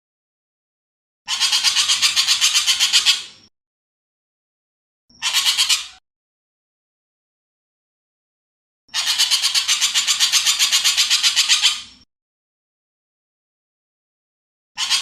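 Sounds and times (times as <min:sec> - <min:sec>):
bird harsh chattering call: 0:01.3 - 0:03.4, 0:05.1 - 0:06.0, 0:08.9 - 0:12.0, 0:14.8 - 0:15.0.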